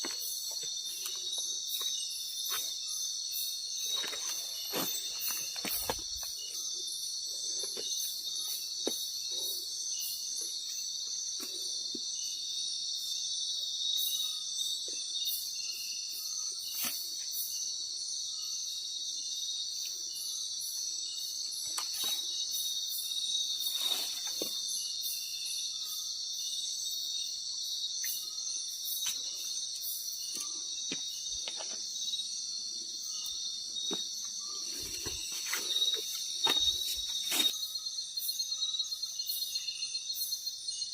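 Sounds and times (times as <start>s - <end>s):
crickets and insects shrilling: 0.0s - 40.9s.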